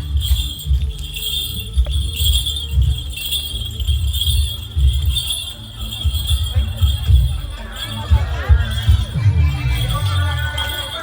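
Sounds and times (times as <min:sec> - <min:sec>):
jingling bells: 0:00.0 - 0:11.0
steady drum beat: 0:00.0 - 0:11.0.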